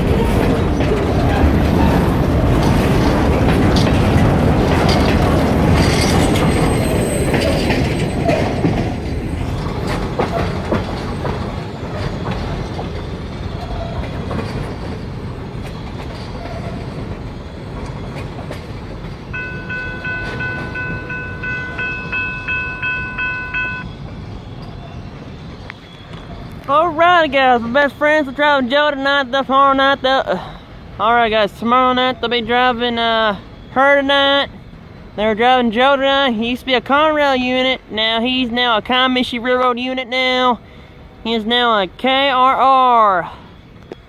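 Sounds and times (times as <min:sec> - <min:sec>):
wheels clicking over rail joints: 0:00.0 - 0:30.2
freight train cars rolling past: 0:00.0 - 0:44.0
railroad crossing bell ringing: 0:19.3 - 0:24.8.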